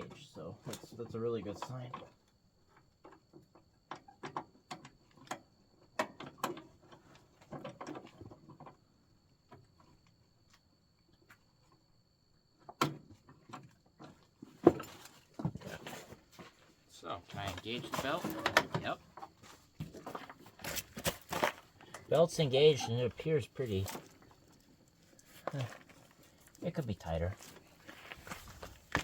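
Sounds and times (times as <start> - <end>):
clicks and clunks of mower parts: 6.0 - 8.8, 12.6 - 16.6, 17.3 - 22.1.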